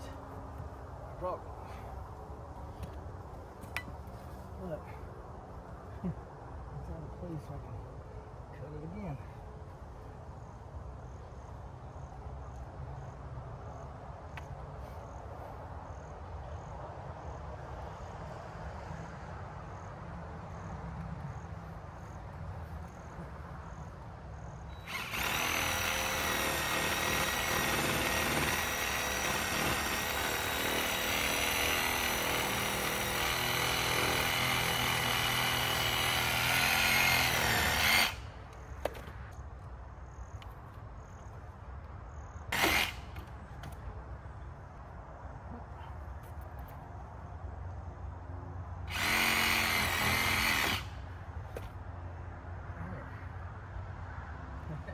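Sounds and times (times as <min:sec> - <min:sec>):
power saw cutting root: 0:24.8 - 0:38.2, 0:42.5 - 0:43.3, 0:48.9 - 0:51.0.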